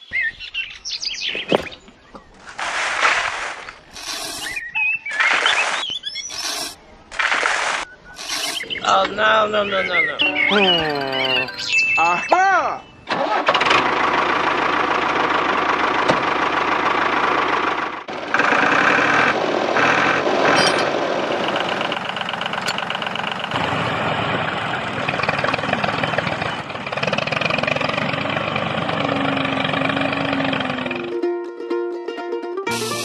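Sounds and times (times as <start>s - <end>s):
small tractor engine running: 3.9s - 4.6s, 13.1s - 31.2s.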